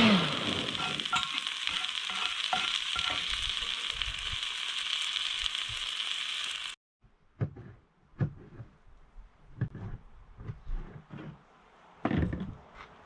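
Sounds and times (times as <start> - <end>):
food sizzling in a frying pan: 0.0 - 6.8
utensil clinking against pan: 0.8 - 3.3.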